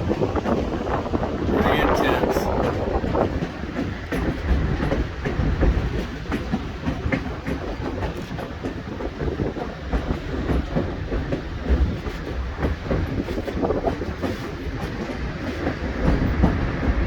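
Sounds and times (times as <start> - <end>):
train car rumbling: 0.0 - 17.0
wheels clicking on rails: 0.0 - 17.0.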